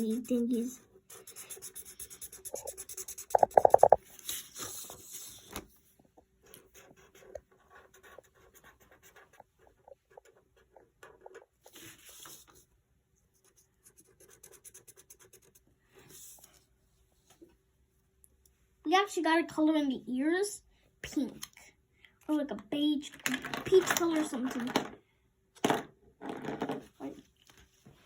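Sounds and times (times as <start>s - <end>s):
colouring strokes scratching on paper: 0.0s - 5.4s, 6.5s - 12.6s, 13.4s - 16.6s.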